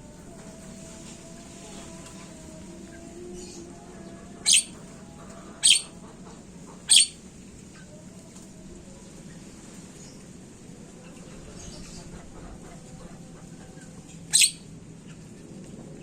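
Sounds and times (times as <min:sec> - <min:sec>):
faint birdsong: 0:01.3 - 0:16.0
myna squawking: 0:04.5 - 0:04.8, 0:05.6 - 0:05.9, 0:06.9 - 0:07.2, 0:14.4 - 0:14.6.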